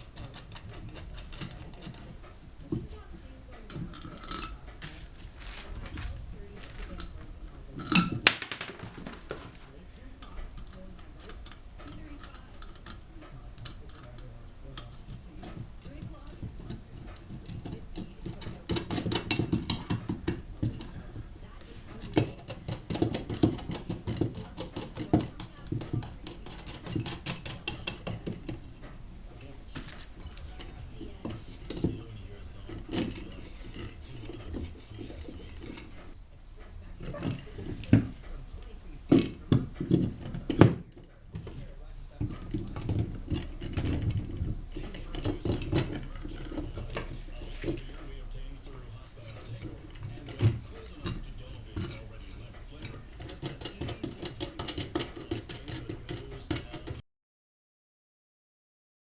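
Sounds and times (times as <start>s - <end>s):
metal tools knocking against wood: 0.0s - 9.6s, 10.2s - 36.2s, 36.9s - 57.0s
metal parts clinking: 49.3s - 57.0s.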